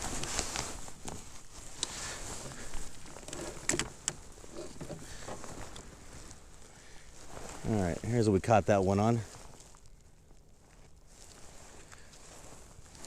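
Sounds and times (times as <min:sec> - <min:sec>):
fishing gear clicking and rustling: 0:00.0 - 0:06.7.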